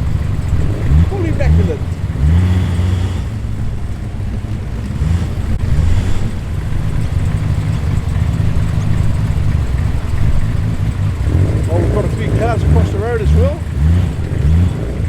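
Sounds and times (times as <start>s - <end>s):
car engine deep rumble revving: 0.0s - 15.0s.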